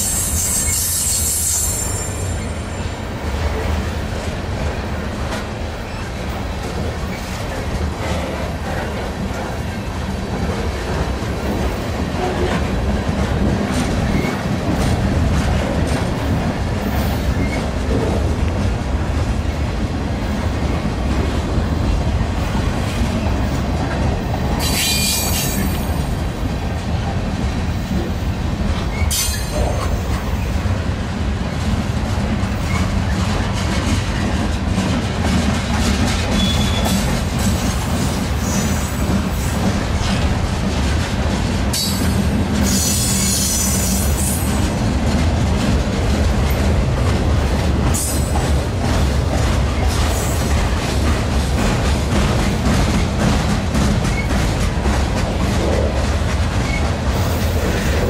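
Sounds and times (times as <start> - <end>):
high wheel squeals: 0.0 - 3.0
freight train wheels rumbling: 0.0 - 58.0.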